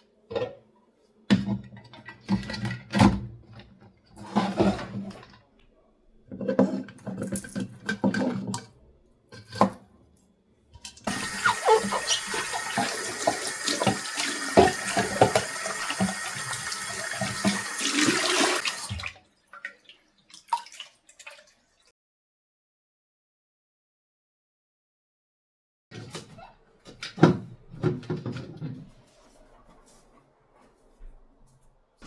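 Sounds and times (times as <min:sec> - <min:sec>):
tap water running into sink: 0:11.0 - 0:21.6
water splashing: 0:11.1 - 0:21.8
knocks and handling sounds: 0:26.0 - 0:31.7.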